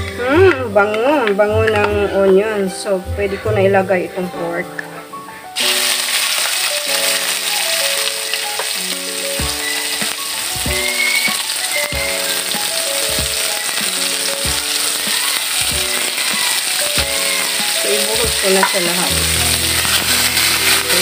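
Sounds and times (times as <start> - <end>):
meat sizzling in a wok: 5.6 - 21.0.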